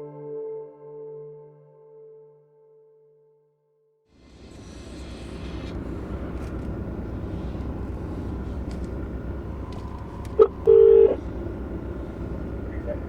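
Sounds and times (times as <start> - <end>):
steady low rumble: 4.2 - 13.0
telephone ringing tone: 10.4 - 11.2.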